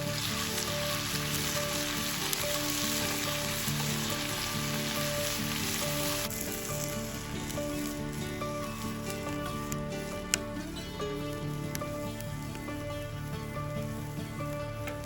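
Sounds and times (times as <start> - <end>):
food sizzling in a hot pan: 0.0 - 10.1
background music: 0.0 - 15.0.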